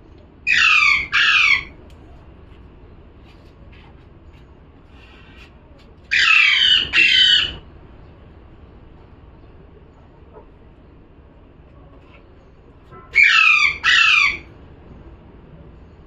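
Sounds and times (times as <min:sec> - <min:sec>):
parrot squawking: 0:00.5 - 0:01.8, 0:06.1 - 0:07.6, 0:13.1 - 0:14.5.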